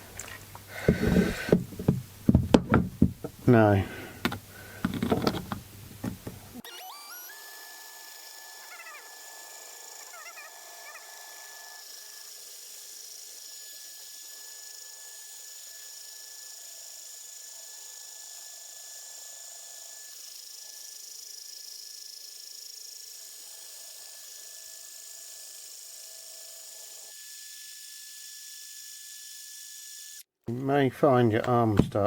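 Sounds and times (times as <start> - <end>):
drill grinding into glass: 0.8 - 1.6
handling knocks: 0.8 - 3.5, 4.2 - 6.5.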